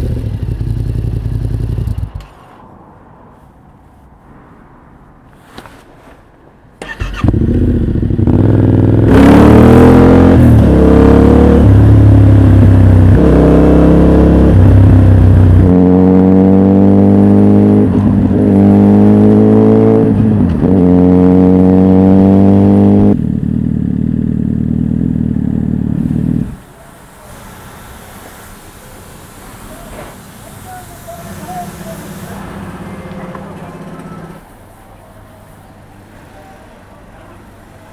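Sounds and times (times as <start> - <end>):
motorcycle engine revving: 0.0 - 2.2, 6.8 - 26.6, 31.3 - 34.4.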